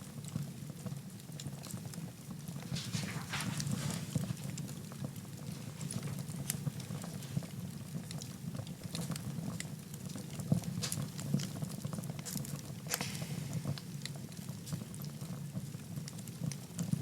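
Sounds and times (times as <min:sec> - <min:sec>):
low rumble of flames: 0:00.0 - 0:17.0
wood fire crackling and popping: 0:00.0 - 0:17.0
fire hiss: 0:12.9 - 0:14.0.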